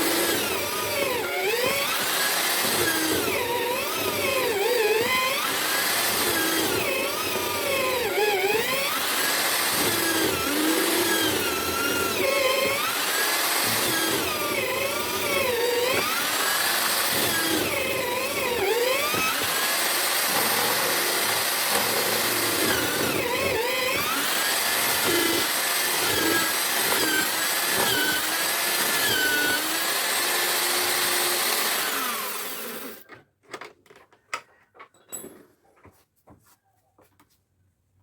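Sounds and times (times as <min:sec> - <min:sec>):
drill motor cutting wood: 0:00.0 - 0:33.1
knocks and clicks: 0:33.0 - 0:35.5.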